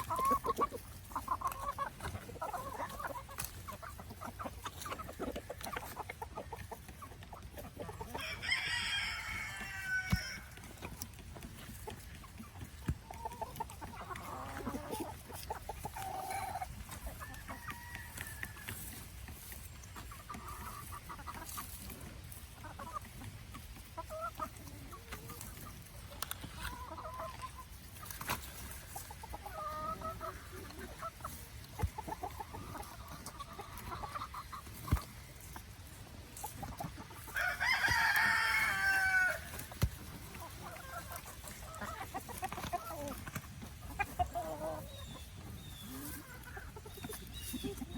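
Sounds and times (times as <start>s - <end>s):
chickens clucking: 0.0s - 47.9s
rooster crowing: 8.2s - 10.5s, 37.3s - 39.5s.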